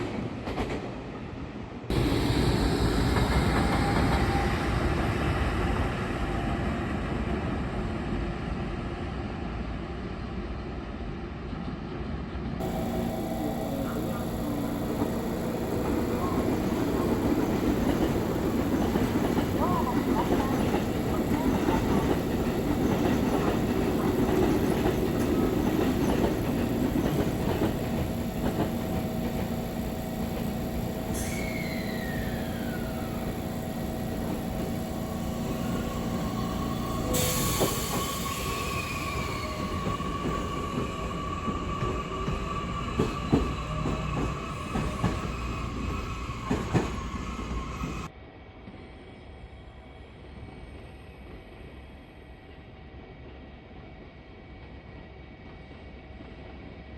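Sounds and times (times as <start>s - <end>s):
train running on rails: 0.0s - 56.9s
falling whine: 12.6s - 48.1s
high squeal: 12.6s - 48.1s.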